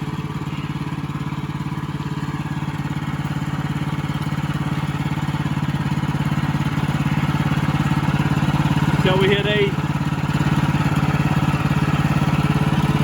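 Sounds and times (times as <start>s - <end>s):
small gasoline engine running: 0.0s - 13.0s.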